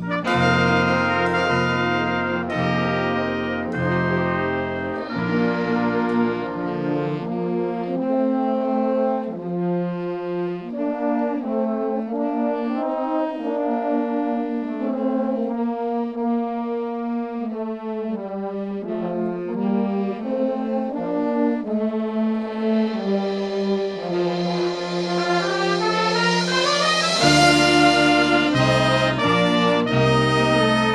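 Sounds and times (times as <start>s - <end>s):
low bass notes: 0.0s - 7.9s
brass ensemble playing: 0.0s - 30.9s.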